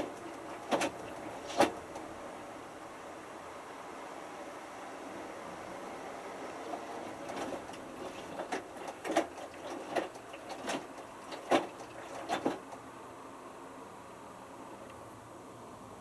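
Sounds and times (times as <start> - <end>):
washing machine drum tumbling: 0.0 - 1.8, 5.9 - 12.7.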